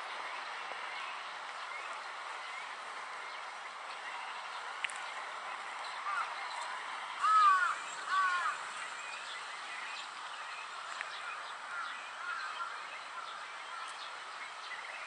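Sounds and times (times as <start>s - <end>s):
small birds chirping: 0.0s - 15.0s
crow cawing: 7.2s - 8.6s.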